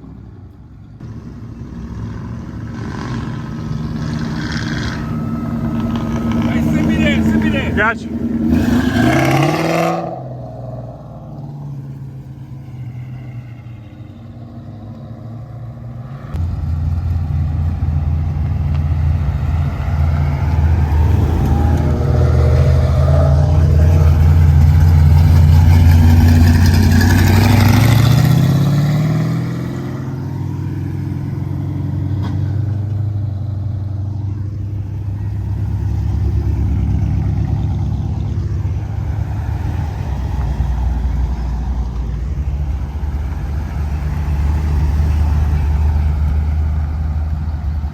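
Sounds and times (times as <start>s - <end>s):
car engine rumbling and revving: 0.0s - 47.9s.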